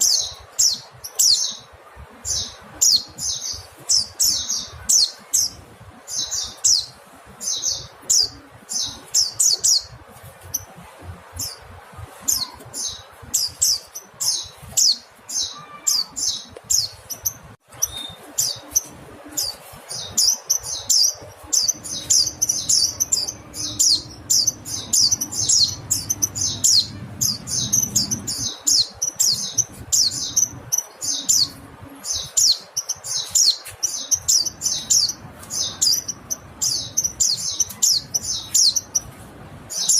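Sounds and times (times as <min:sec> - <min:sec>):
bird high chirps: 0:12.2 - 0:39.9.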